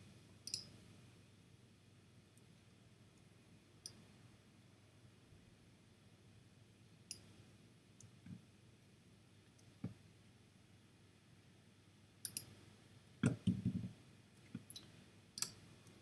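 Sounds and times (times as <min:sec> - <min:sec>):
computer mouse clicks: 0:00.4 - 0:00.7, 0:12.2 - 0:12.5.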